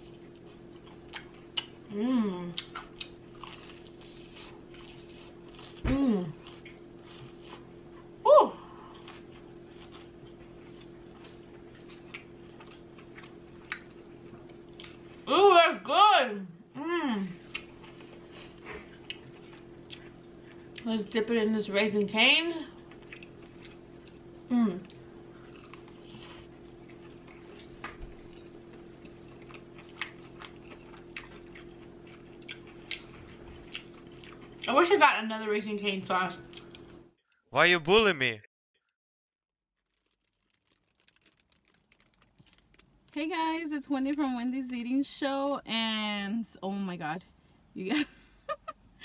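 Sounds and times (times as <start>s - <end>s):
close chewing and crunching: 0.0s - 15.3s, 17.4s - 21.2s, 21.8s - 35.0s, 36.4s - 37.0s, 39.8s - 44.2s
steady hum: 0.0s - 38.4s
mouth clicks and smacks: 39.9s - 42.9s.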